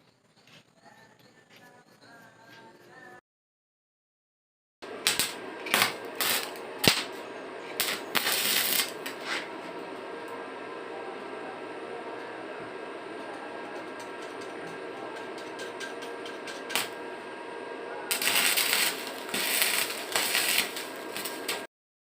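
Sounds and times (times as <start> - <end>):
metal lathe humming: 4.8 - 21.7
loud scraping hissing noise: 4.9 - 9.8, 18.1 - 21.7.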